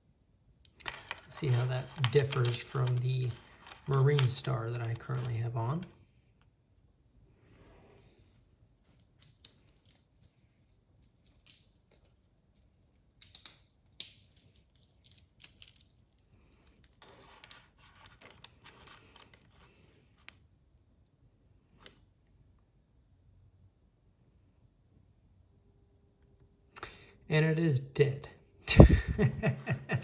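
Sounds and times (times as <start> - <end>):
rustling and scraping: 0.8 - 5.6, 16.2 - 20.3.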